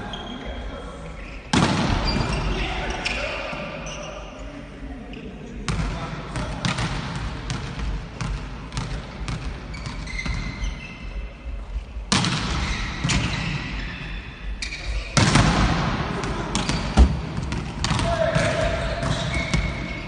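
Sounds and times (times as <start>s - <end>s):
shoe squeaks: 1.2s - 4.2s, 9.7s - 11.2s, 12.6s - 15.2s, 19.0s - 20.0s.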